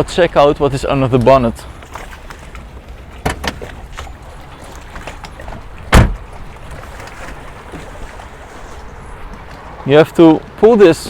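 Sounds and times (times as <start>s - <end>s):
car door latch clicks: 5.9s - 6.2s
car door thump: 5.9s - 6.3s.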